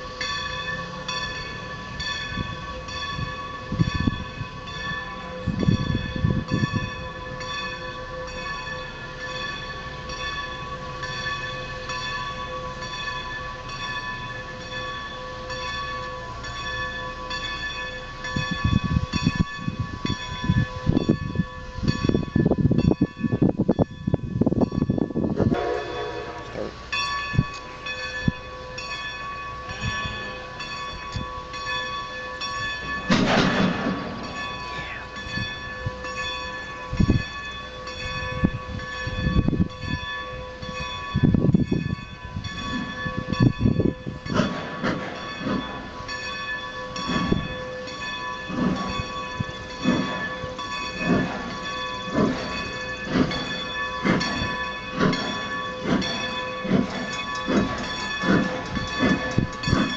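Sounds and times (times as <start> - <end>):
steam locomotive exhaust beats: 0.0 - 59.9.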